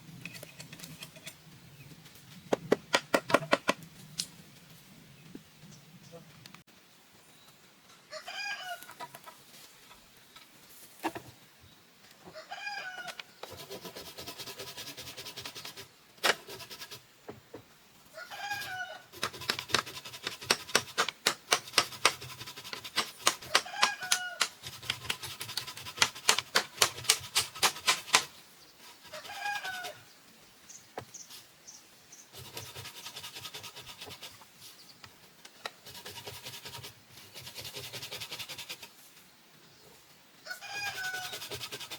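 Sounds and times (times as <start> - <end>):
sharp knocks on bamboo: 2.5 - 3.8, 26.0 - 28.3.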